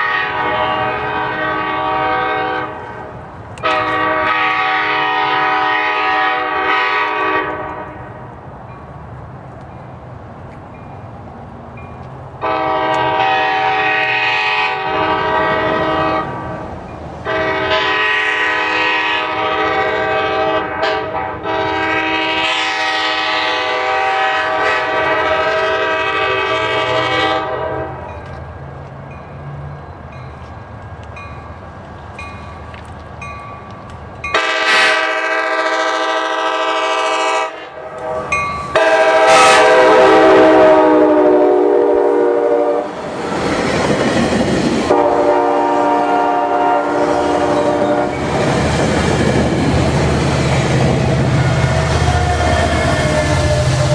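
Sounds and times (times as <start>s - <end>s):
train air horn blasts: 0.0s - 8.2s, 12.4s - 16.6s, 17.2s - 28.1s, 34.3s - 43.0s, 44.9s - 48.4s, 50.8s - 53.9s.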